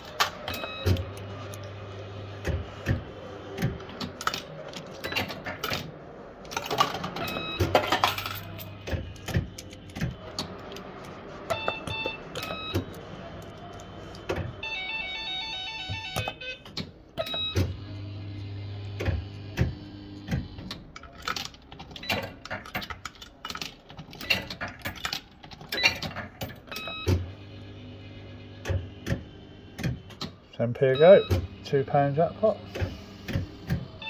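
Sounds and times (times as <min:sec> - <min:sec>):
sharp clicks and clunks: 0:02.4 - 0:14.6, 0:18.9 - 0:27.2.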